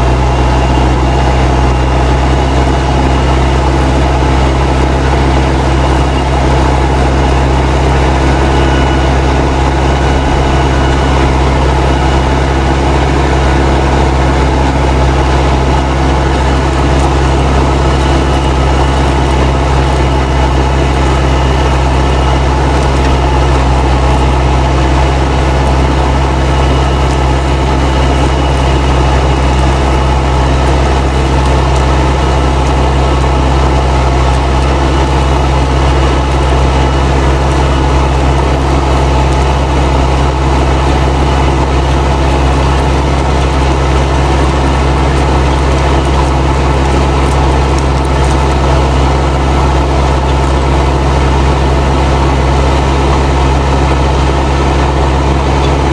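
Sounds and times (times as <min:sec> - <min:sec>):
tractor diesel engine under load: 0:00.0 - 0:55.9
turbo whistling: 0:05.8 - 0:35.4.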